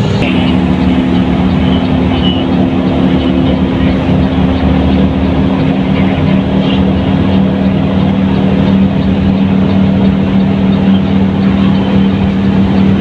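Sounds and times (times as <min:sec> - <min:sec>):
bus diesel engine droning: 0:00.0 - 0:13.0
road noise: 0:00.0 - 0:13.0.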